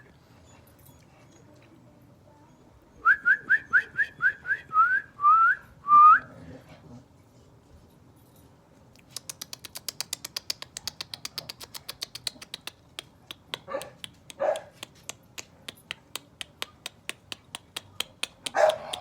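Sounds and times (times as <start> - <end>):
fast sharp clicks: 9.1 - 19.0
puppy yipping: 13.7 - 14.8, 18.5 - 19.0.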